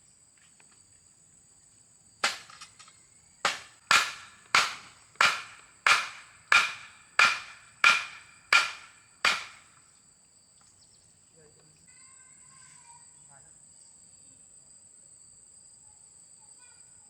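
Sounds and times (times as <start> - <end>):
sharp ringing blows: 3.5 - 9.7.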